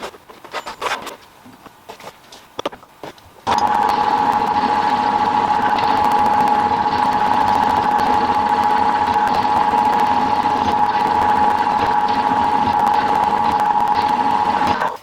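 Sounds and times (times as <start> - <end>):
fine rapid cutter chatter: 3.5 - 15.0
milling machine whine: 3.5 - 15.0.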